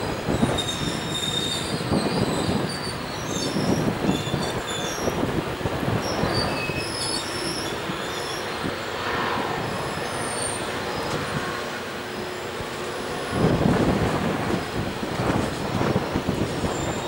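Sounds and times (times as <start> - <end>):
train wheels clattering on rails: 0.0 - 8.7
wheels squealing on curve: 0.3 - 5.3, 5.9 - 11.6, 16.0 - 17.0.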